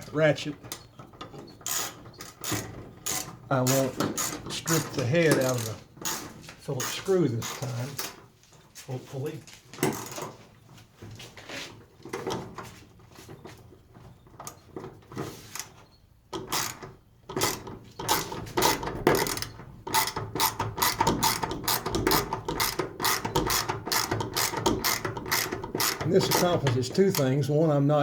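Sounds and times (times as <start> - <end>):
ratchet wrench clicking: 1.6 - 6.2, 17.4 - 27.3.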